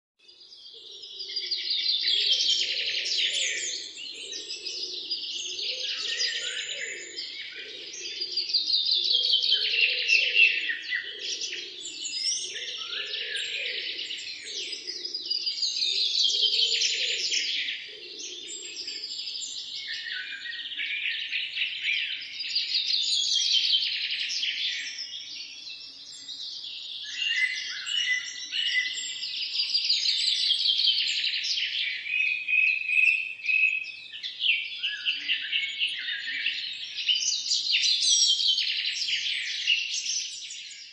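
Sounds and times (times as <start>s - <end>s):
songbirds chirping and trilling: 0.2s - 40.9s.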